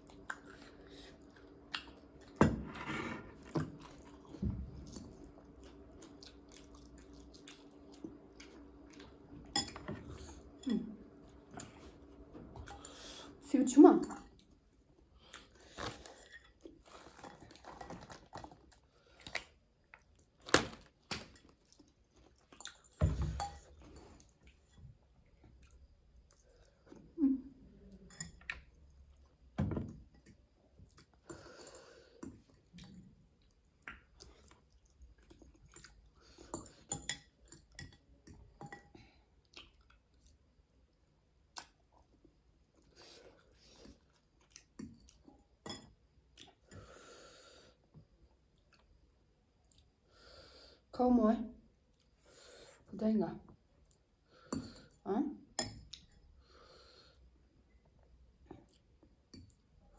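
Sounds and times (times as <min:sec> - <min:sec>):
chewing and mouth smacking: 0:39.4 - 0:40.4.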